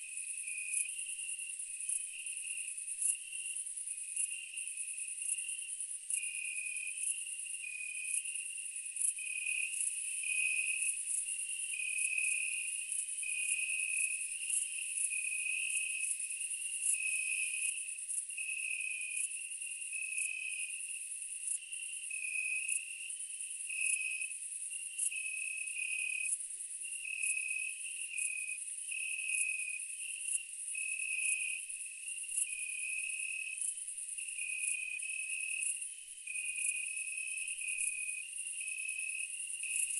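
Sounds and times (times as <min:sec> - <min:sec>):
insect chirp alternating pitches: 0:24.9 - 0:39.9.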